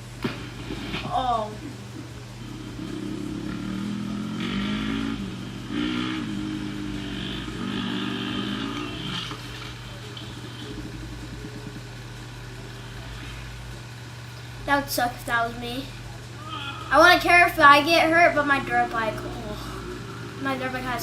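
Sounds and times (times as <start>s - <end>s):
steady low hum: 0.0s - 21.0s
small engine revving: 2.4s - 12.0s.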